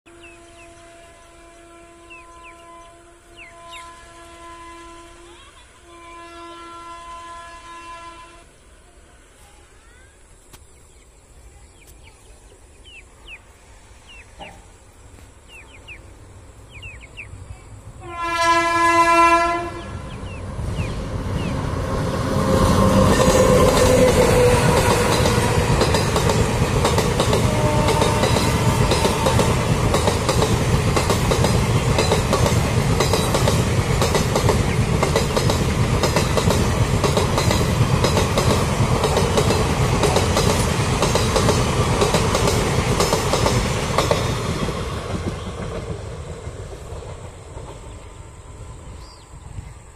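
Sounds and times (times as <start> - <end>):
train horn blast: 0.1 - 8.6, 18.0 - 20.3, 22.2 - 25.9, 27.2 - 29.7
train rolling rumble: 0.1 - 49.9
wheels clacking over rail joints: 22.6 - 48.2.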